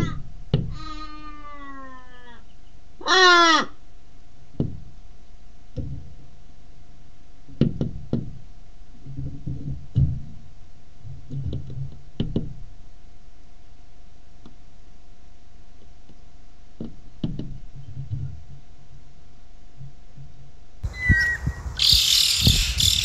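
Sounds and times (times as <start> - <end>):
crow cawing: 20.8 - 23.0.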